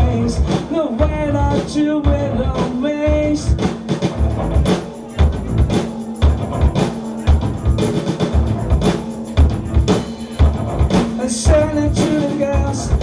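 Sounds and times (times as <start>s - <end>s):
live band playing: 2.8s - 13.0s.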